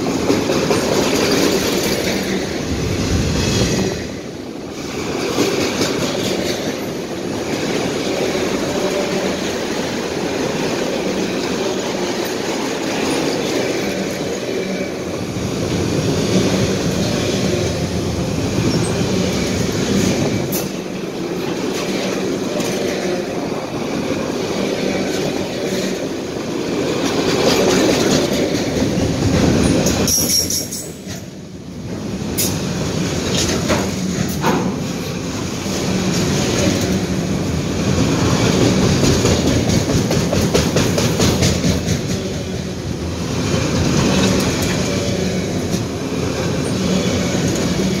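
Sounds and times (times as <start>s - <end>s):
wheels clacking over rail joints: 0.0s - 4.2s, 4.8s - 48.0s
steel wheels rumbling on rails: 0.0s - 48.0s.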